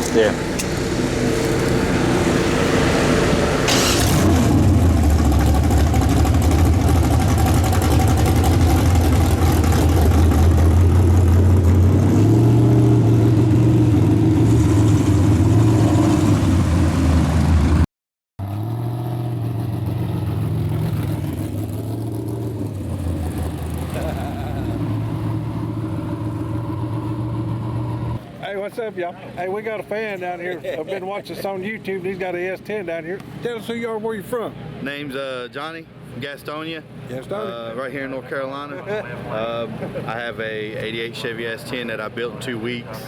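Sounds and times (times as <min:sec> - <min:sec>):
loud car engine running: 0:00.0 - 0:17.8, 0:18.4 - 0:28.2
quieter engine sound: 0:00.0 - 0:17.8, 0:18.4 - 0:43.0.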